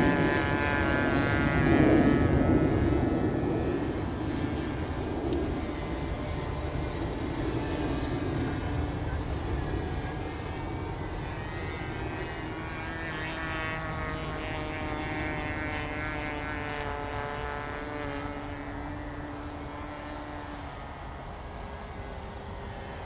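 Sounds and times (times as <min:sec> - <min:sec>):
model airplane engine whining: 0:00.0 - 0:23.0.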